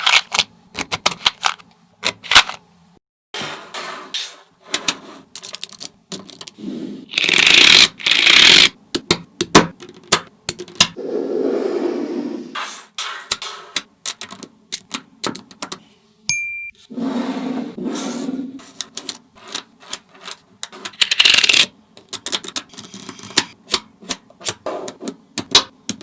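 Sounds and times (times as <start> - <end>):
magnetic balls clicking together: 20.9 - 23.8.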